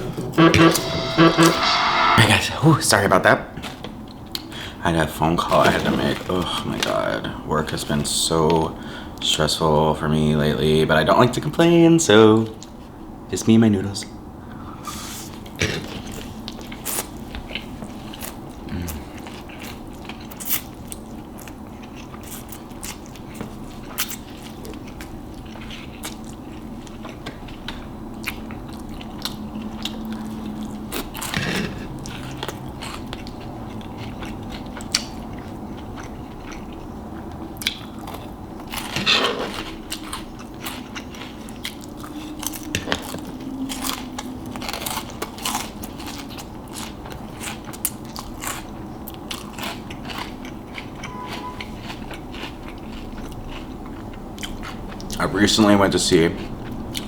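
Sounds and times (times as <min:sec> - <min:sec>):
chewing crunchy food close-up: 0:15.2 - 0:57.0.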